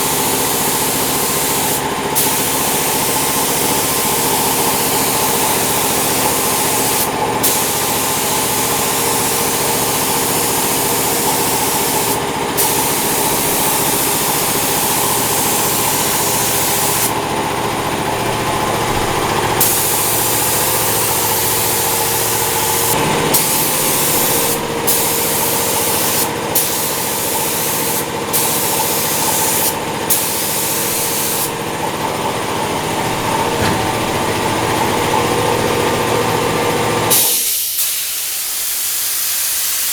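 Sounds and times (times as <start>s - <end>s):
paint spray gun hissing: 0.0s - 39.9s
motor humming: 31.0s - 37.1s.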